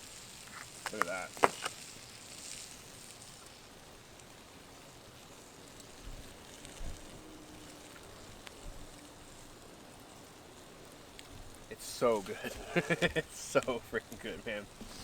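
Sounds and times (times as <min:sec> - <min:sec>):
campfire hissing: 0:00.0 - 0:15.0.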